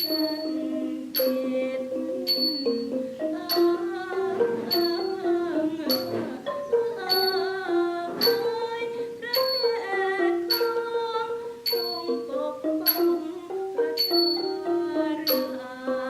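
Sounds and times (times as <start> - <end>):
hand cymbals struck: 0.0 - 1.4, 2.3 - 2.9, 4.7 - 7.6, 8.2 - 10.9, 11.6 - 13.4, 14.0 - 14.6
traditional ensemble slow melody: 0.0 - 16.0.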